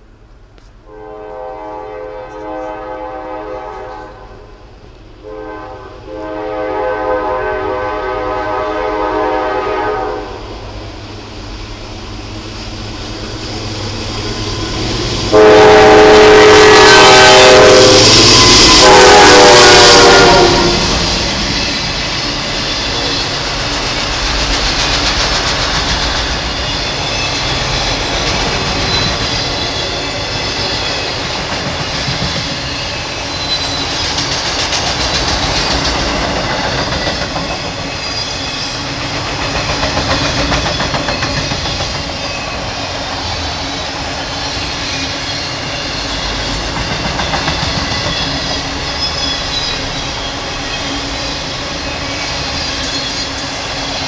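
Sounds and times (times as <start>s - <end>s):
locomotive air horn blasts: 0.9s - 4.6s, 5.2s - 10.6s, 15.3s - 21.1s
freight cars clattering on rails: 21.1s - 54.0s.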